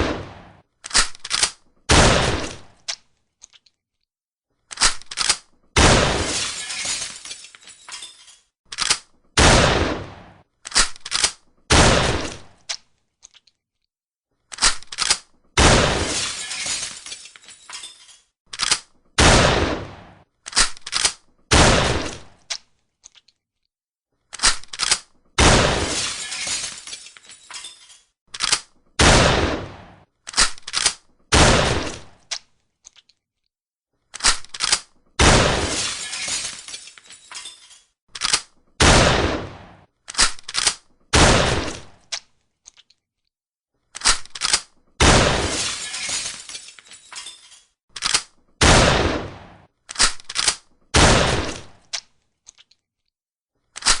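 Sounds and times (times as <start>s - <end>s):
shotgun blasts: 0.0s - 0.6s, 1.9s - 2.7s, 5.8s - 6.3s, 9.4s - 10.4s, 11.7s - 12.6s, 15.6s - 16.2s, 19.2s - 20.2s, 21.5s - 22.3s, 25.4s - 26.0s, 29.0s - 30.0s, 31.3s - 32.1s, 35.2s - 35.8s, 38.8s - 39.9s, 41.1s - 41.9s, 45.0s - 45.6s, 48.6s - 49.7s, 51.0s - 51.8s
gun reloading clacks: 0.8s - 1.7s, 4.7s - 5.7s, 7.9s - 9.3s, 10.6s - 11.6s, 14.5s - 15.5s, 17.7s - 19.2s, 20.4s - 21.5s, 24.3s - 25.4s, 27.5s - 29.0s, 30.2s - 31.2s, 34.1s - 35.0s, 37.3s - 38.7s, 40.0s - 41.0s, 43.9s - 44.8s, 47.1s - 48.5s, 49.9s - 50.8s, 53.7s - 54.0s.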